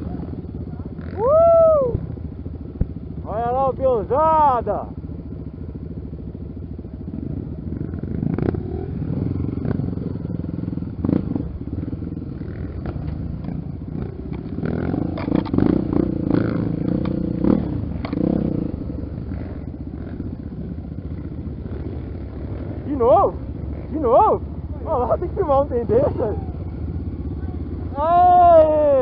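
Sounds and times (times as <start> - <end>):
motorcycle engines revving: 0.0 - 29.0
clatter: 11.0 - 18.6.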